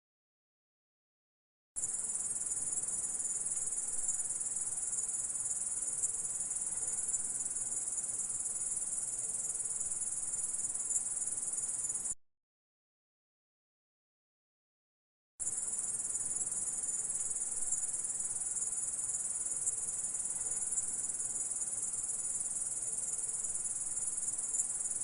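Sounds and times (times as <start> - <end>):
grasshopper stridulating: 15.4 - 25.0.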